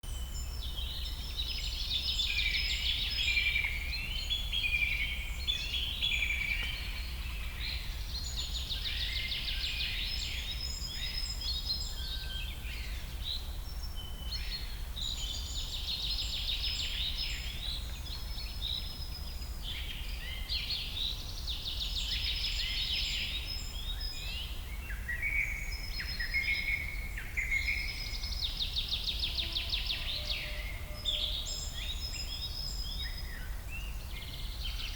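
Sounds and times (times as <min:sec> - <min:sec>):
bird trilling song: 0:00.1 - 0:34.9.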